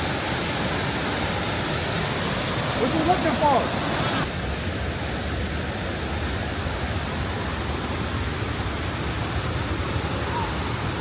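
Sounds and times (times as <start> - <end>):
running water rushing: 0.0 - 11.0.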